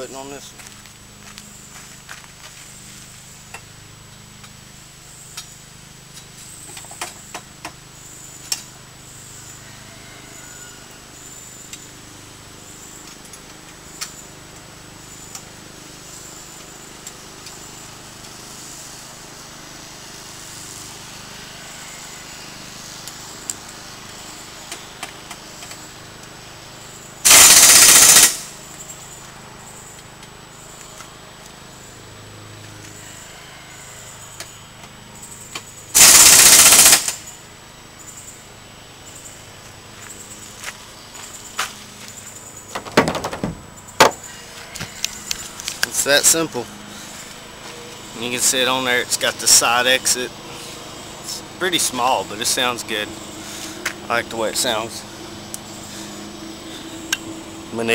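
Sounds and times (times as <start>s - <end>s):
impact wrench hammering: 36.0s - 37.2s.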